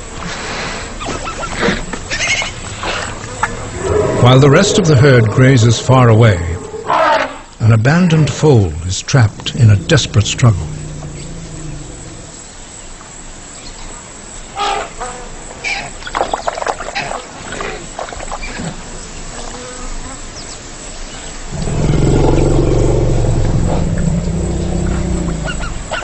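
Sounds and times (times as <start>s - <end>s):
low drawn-out animal call: 2.1s - 7.5s, 9.2s - 12.6s, 21.5s - 26.0s
flies buzzing: 9.3s - 12.8s.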